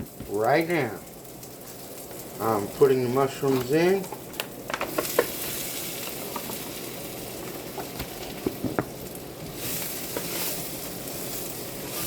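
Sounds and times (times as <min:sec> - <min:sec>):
mushrooms sizzling in a skillet: 0:00.0 - 0:12.0.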